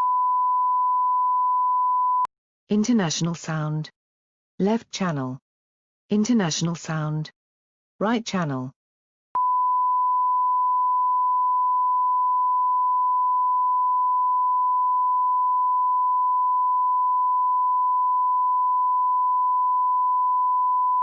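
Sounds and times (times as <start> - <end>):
sine wave test tone: 0.0 - 2.3, 9.4 - 21.0.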